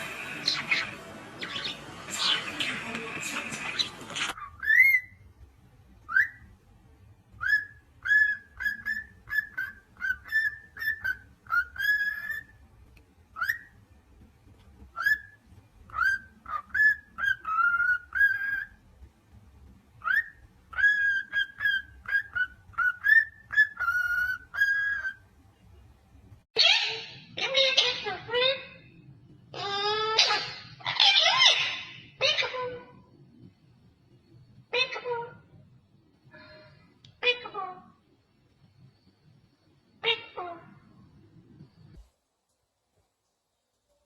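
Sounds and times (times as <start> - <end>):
parrot whistling: 3.8 - 5.2, 6.1 - 6.5, 7.4 - 12.6, 14.9 - 18.8, 20.0 - 25.2.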